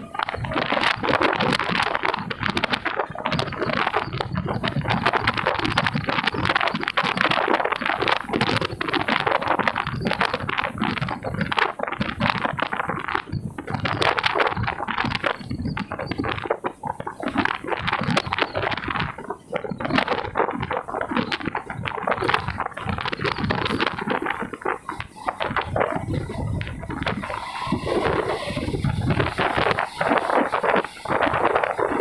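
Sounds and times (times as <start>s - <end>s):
train wheels rumbling and clattering: 23.4s - 32.0s.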